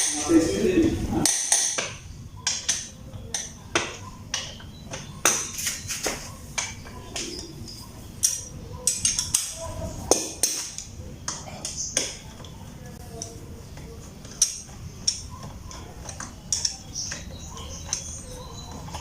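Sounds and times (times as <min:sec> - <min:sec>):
metal tools clinking: 0:04.4 - 0:09.6.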